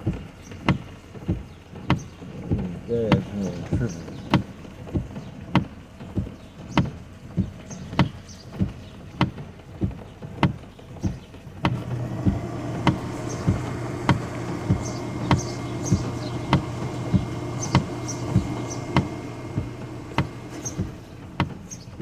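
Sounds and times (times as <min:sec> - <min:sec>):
turn signal ticking: 0:00.0 - 0:22.0
low steady hum: 0:11.1 - 0:22.0.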